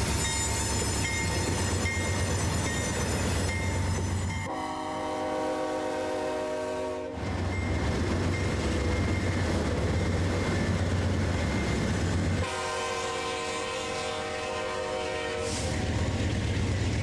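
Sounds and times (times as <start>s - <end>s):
rail noise: 0.0s - 17.0s
train air horn chord: 4.5s - 7.2s, 12.4s - 15.9s.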